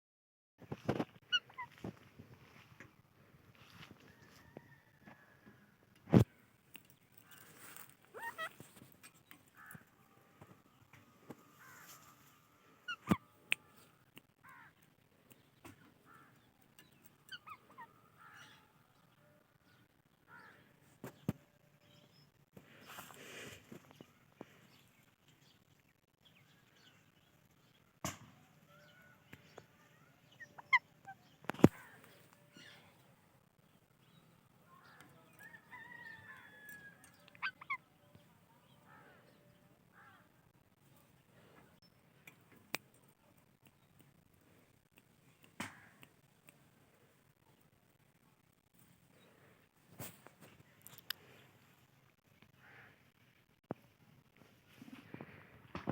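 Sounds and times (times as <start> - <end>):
parakeets chirping and squawking: 7.3 - 9.0
parakeets chirping: 8.1 - 8.6.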